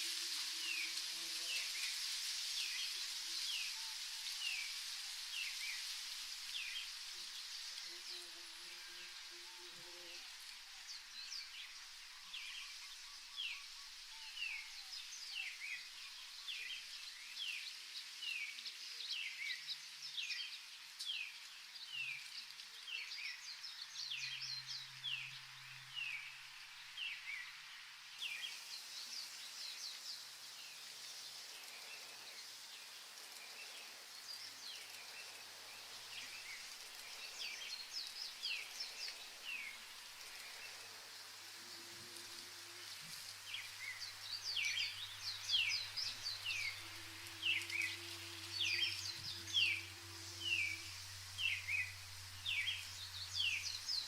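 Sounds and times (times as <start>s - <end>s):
faint high hiss: 0.0s - 54.0s
birds chirping: 41.6s - 54.0s.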